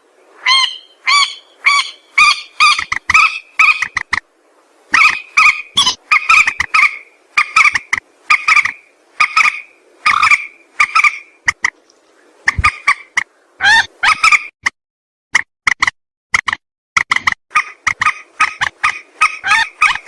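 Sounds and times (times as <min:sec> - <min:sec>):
rail bird harsh calls: 0:00.4 - 0:04.2, 0:04.9 - 0:11.4, 0:17.5 - 0:20.0.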